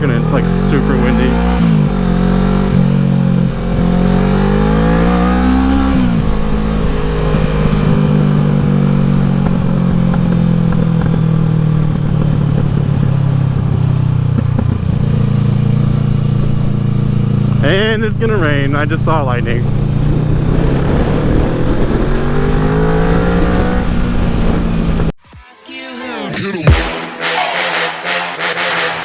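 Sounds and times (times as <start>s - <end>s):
motorcycle engine revving: 0.0s - 25.1s.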